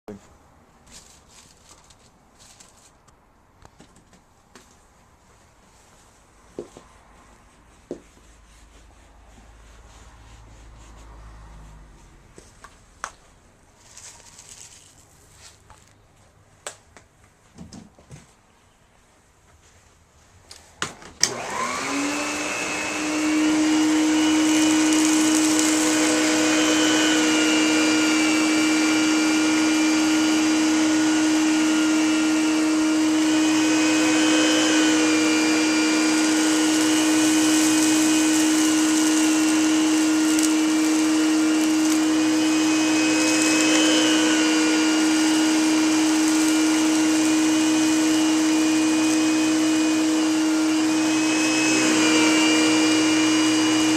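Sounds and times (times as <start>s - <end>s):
vacuum cleaner switch clicks: 21.2s - 21.8s
vacuum cleaner motor humming: 21.2s - 53.9s.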